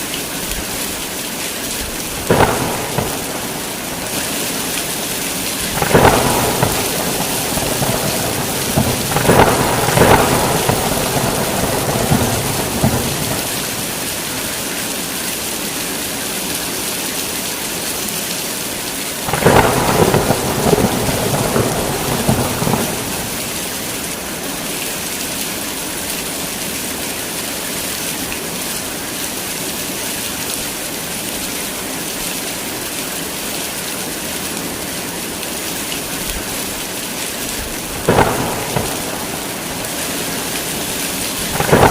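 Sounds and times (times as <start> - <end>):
heavy rain falling: 0.0 - 41.9
thunder rumbling: 1.8 - 14.7, 19.3 - 24.3, 37.5 - 41.9.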